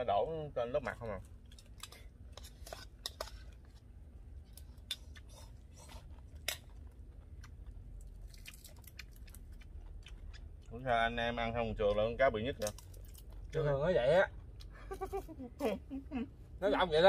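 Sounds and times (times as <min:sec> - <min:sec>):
chewing crispy fried fish: 0:00.8 - 0:15.8.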